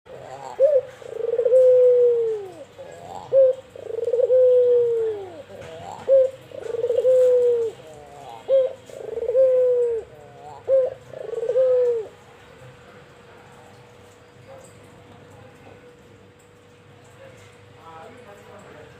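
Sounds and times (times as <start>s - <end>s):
dove cooing: 0.1s - 12.2s.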